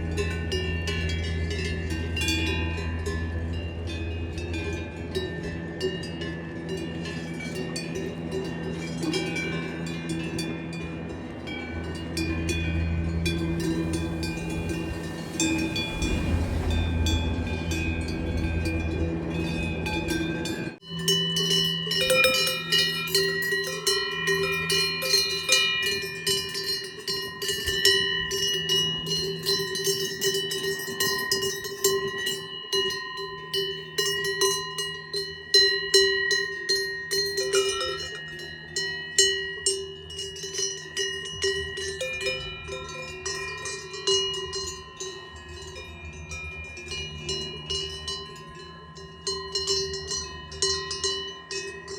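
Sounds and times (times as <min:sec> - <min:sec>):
cowbells clanking: 0:00.0 - 0:51.9
low rumble: 0:10.2 - 0:20.8.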